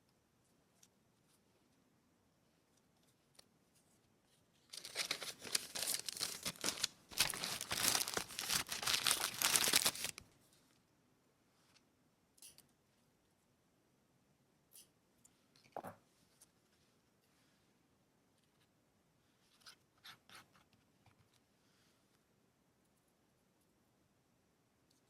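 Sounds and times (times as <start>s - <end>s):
paper tearing and crinkling: 4.7s - 10.2s.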